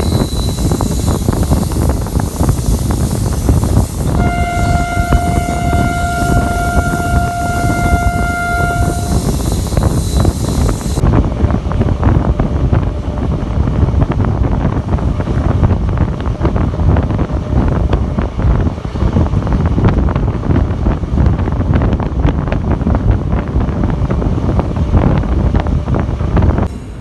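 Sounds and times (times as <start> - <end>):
train horn blast: 0.0 - 11.0
moving train rumble and clatter: 0.0 - 27.0.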